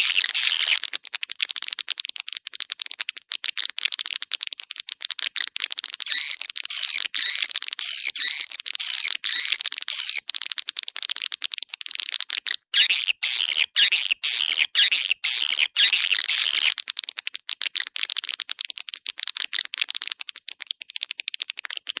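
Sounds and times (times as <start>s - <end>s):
swiftlets chirping and twittering: 0.0s - 0.9s, 6.0s - 10.2s, 12.7s - 16.8s
fast short clicks: 0.0s - 22.0s.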